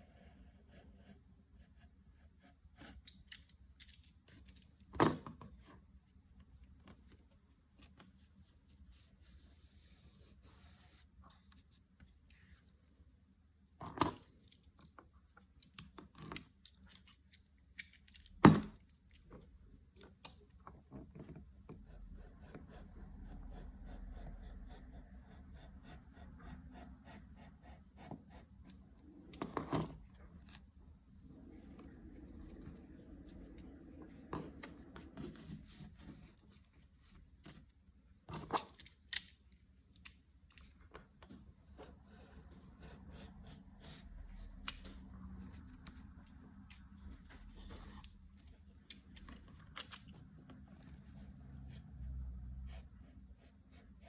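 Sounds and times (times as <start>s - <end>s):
light clicks and scrapes: 43.8s - 52.1s.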